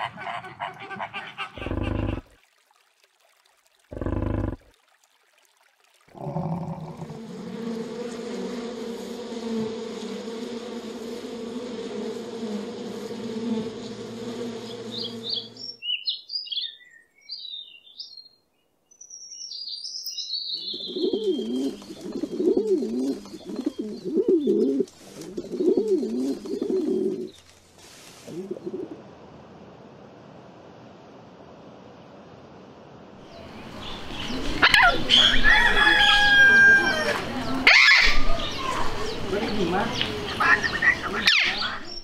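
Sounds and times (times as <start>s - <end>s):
pigeon cooing: 1.2s - 2.2s, 3.9s - 4.6s, 28.3s - 29.0s
honeybees buzzing: 3.9s - 4.6s, 7.0s - 15.8s
songbird chirping: 14.5s - 27.6s.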